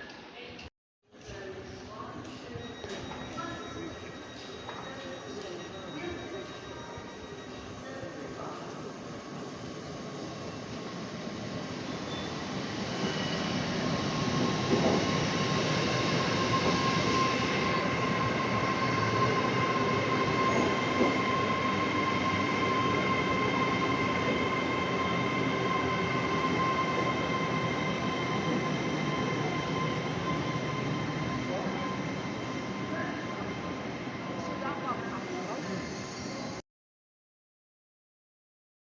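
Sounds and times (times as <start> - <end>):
high whine of train: 1.4 - 36.6
train wheels rumbling on track: 8.4 - 36.5.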